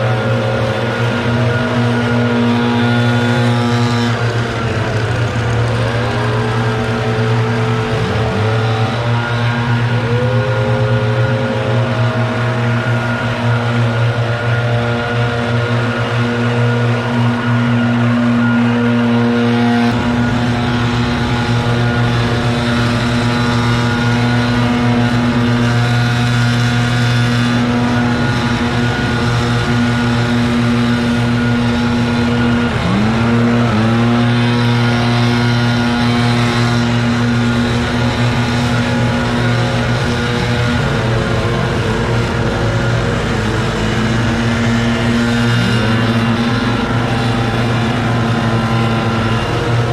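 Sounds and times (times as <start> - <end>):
small engine running at high speed: 0.0 - 49.9
low rumble: 19.9 - 33.1.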